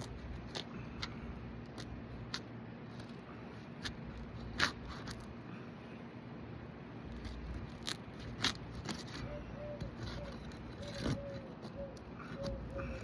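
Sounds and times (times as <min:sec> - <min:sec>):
shingle sealant cracking: 0:07.1 - 0:13.0.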